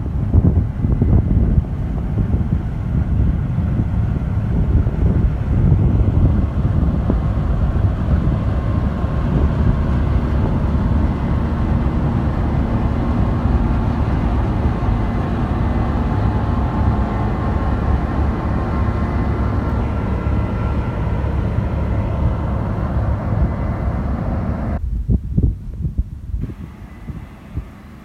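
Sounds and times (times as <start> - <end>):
combine harvester rumbling: 0.0 - 28.0
faint whining tones: 26.2 - 28.0.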